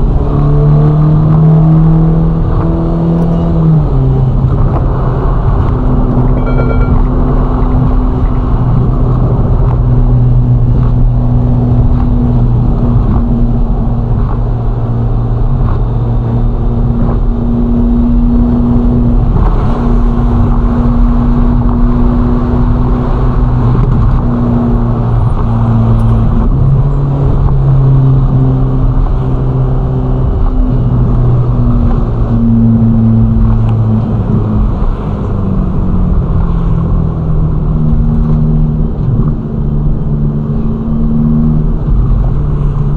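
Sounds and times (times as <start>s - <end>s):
car engine cruising: 0.0s - 42.9s.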